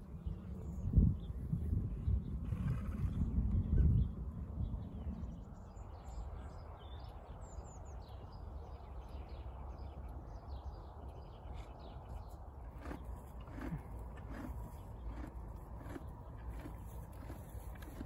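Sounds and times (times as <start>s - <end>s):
small birds chirping: 5.1s - 18.0s.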